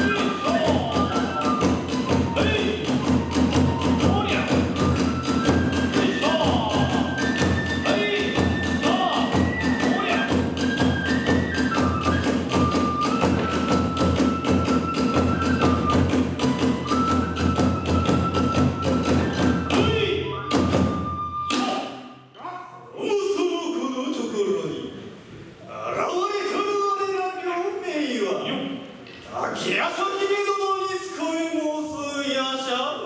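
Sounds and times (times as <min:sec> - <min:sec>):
drum strikes: 0:00.0 - 0:21.9
bamboo flute long notes: 0:00.0 - 0:22.2.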